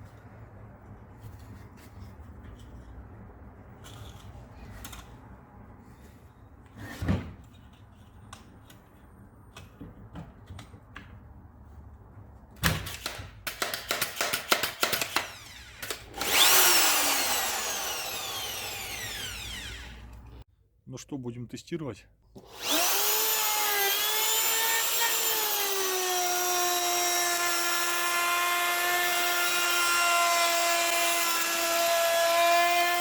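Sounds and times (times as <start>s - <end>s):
wood router motor whine: 15.2s - 20.3s, 22.5s - 33.0s.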